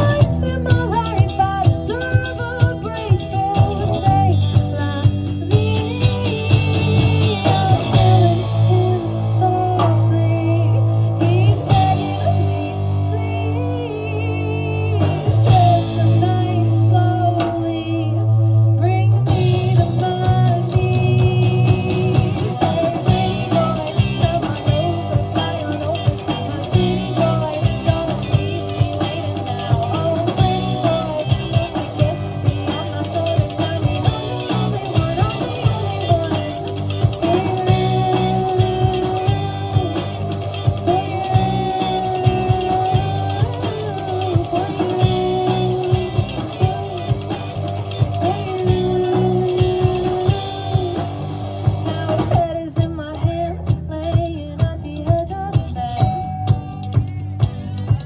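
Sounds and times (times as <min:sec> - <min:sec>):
bass line: 0:00.0 - 0:58.0
guitar: 0:00.0 - 0:58.0
drum beat: 0:20.3 - 0:52.5.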